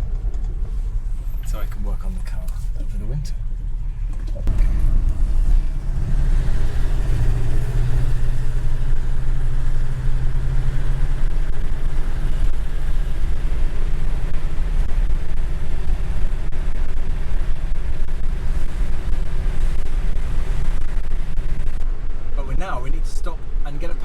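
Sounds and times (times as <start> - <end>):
car engine drone: 0.0 - 24.0
road rumble: 0.0 - 24.0.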